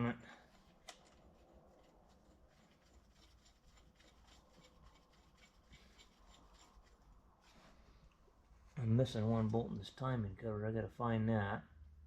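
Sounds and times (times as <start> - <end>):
faint scrapes and ticks: 0.5 - 8.8.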